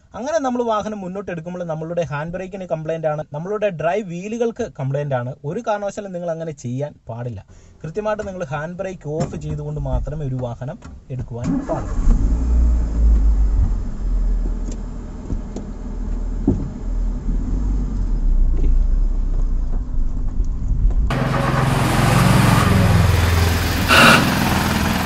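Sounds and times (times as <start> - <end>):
engine starter cranking: 11.3 - 14.0, 21.1 - 25.0
car engine idling: 12.8 - 25.0.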